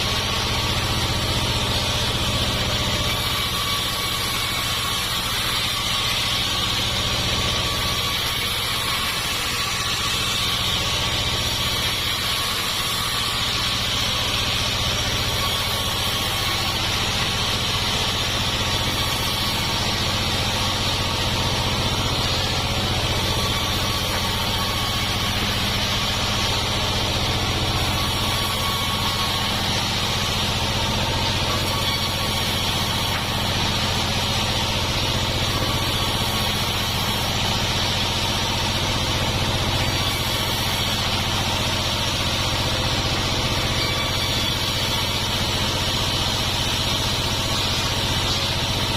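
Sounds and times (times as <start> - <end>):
sawmill machinery drone: 0.0 - 48.9.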